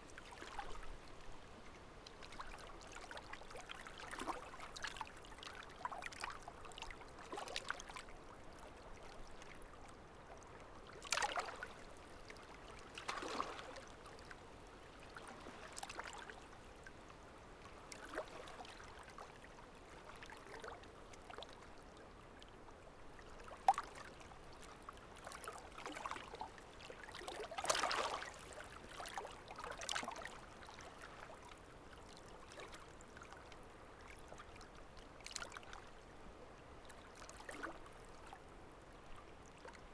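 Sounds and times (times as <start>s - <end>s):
stream trickling and gurgling: 0.0s - 39.9s
water splashes: 11.0s - 11.8s, 12.4s - 13.9s, 25.2s - 31.3s.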